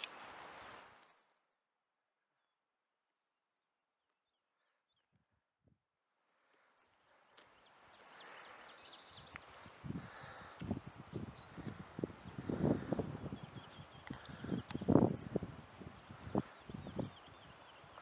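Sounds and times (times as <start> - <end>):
insect-like chirring: 6.4 - 18.0
wind noise on microphone: 9.1 - 18.0.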